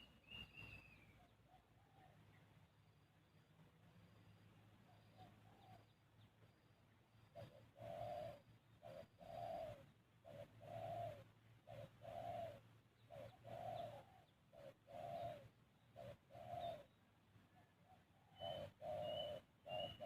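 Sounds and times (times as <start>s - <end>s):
faint high bird chirp: 0.0s - 20.0s
dove cooing: 4.9s - 6.0s, 7.3s - 20.0s.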